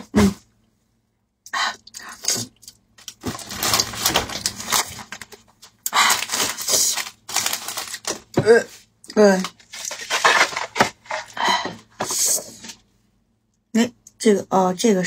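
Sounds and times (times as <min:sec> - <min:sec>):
plastic packet crinkling: 0:02.6 - 0:08.4, 0:09.4 - 0:11.3.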